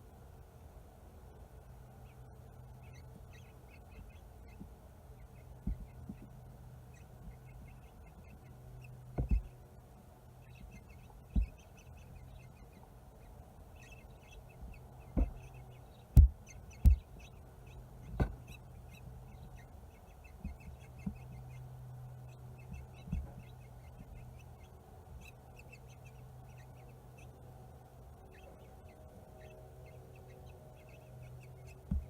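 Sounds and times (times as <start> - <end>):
rapid high bird peeps: 1.6 - 32.0
birds bumping against wreath: 14.6 - 17.2.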